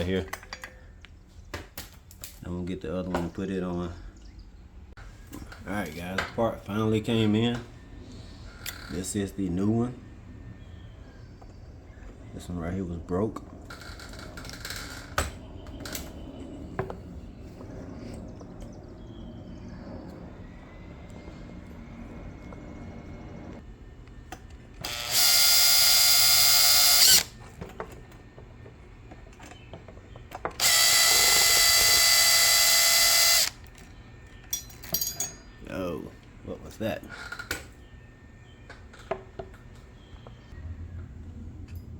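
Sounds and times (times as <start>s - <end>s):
power drill running: 24.8s - 27.3s, 30.6s - 33.7s
handling of parts: 34.4s - 35.6s.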